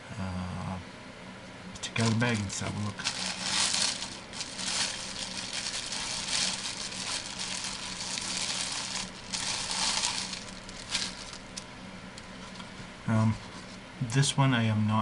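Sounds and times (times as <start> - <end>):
plastic bag crinkling: 1.8 - 11.7.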